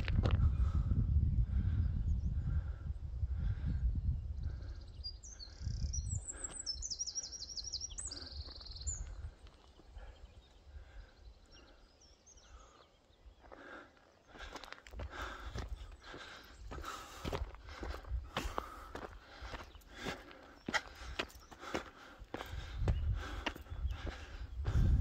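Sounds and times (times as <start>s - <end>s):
wind rumbling on microphone: 0.0s - 7.0s, 7.8s - 12.1s, 14.3s - 25.0s
footsteps: 14.4s - 24.9s.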